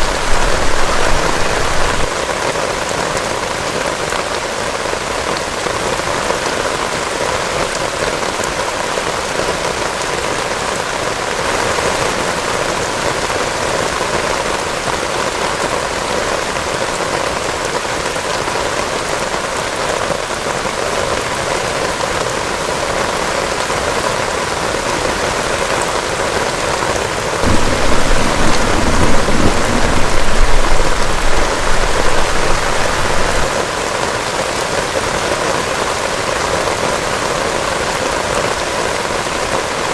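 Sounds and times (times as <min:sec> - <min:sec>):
thunder rumbling: 0:00.0 - 0:02.2, 0:27.4 - 0:33.6
heavy rain falling: 0:00.0 - 0:39.9.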